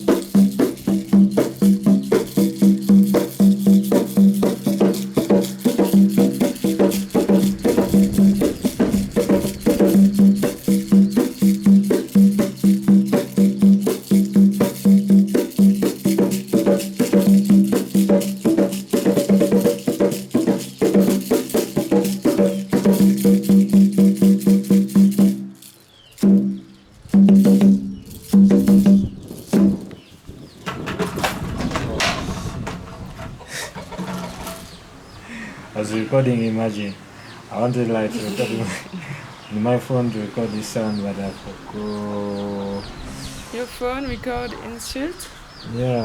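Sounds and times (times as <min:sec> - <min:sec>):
hand drum ringing strokes: 0:00.0 - 0:29.9.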